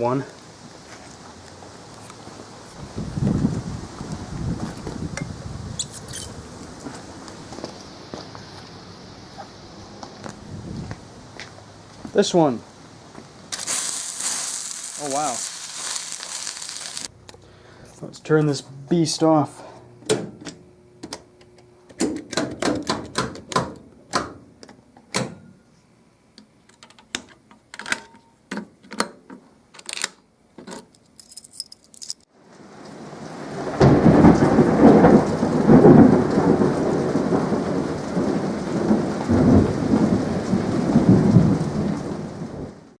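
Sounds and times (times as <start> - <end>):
fire extinguisher spraying: 13.5 - 17.1.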